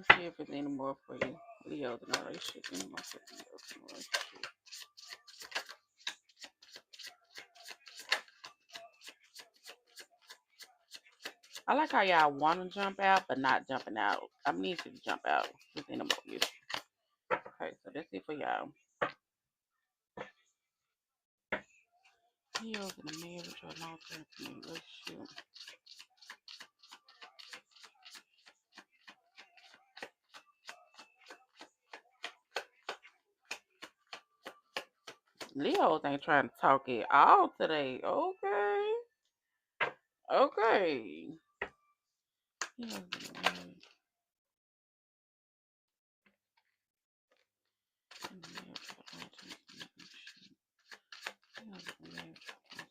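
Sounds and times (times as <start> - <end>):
cards being shuffled: 2.1 - 11.6, 14.7 - 16.9, 22.7 - 35.8, 42.6 - 43.8, 48.1 - 52.9.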